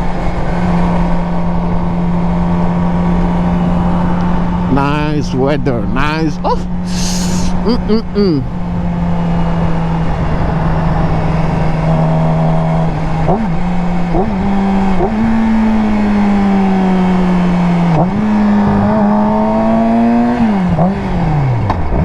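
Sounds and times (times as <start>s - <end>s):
motorcycle engine revving: 8.5s - 22.0s.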